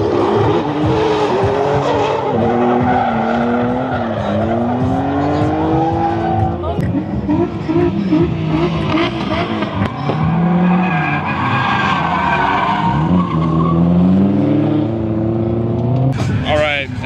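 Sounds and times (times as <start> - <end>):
car engine revving: 0.0 - 17.0
tyres squealing: 2.9 - 13.8.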